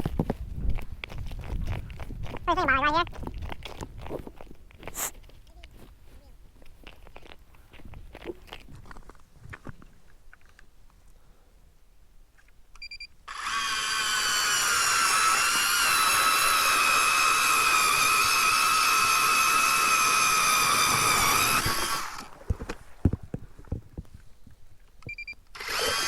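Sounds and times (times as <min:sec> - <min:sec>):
ice auger motor whine: 0:13.3 - 0:22.3, 0:25.5 - 0:26.0
short beep: 0:25.1 - 0:25.4.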